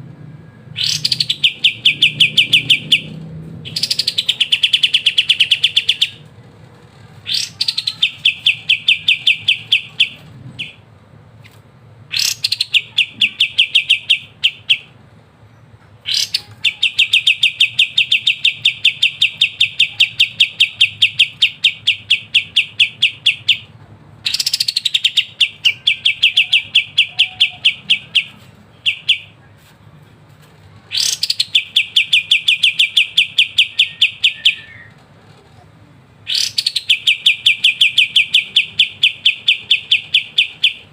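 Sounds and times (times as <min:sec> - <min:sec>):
bulbul singing rapid notes: 0:07.3 - 0:10.8.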